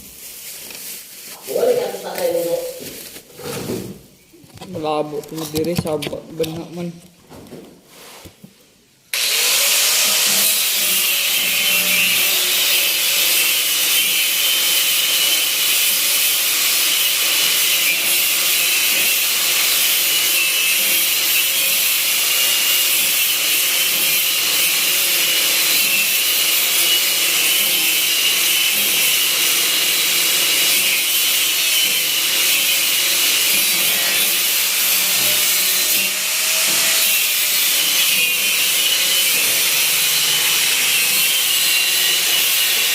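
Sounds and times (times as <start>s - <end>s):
power tool whining: 9.1s - 42.9s.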